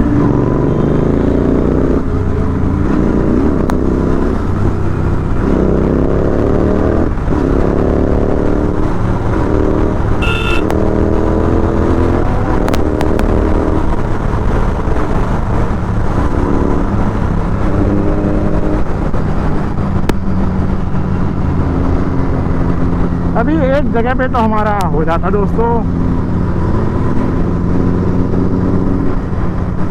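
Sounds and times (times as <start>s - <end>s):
motorcycle engine revving: 0.0s - 20.3s
road and wind rumble: 0.0s - 29.9s
horn beep: 10.2s - 10.8s.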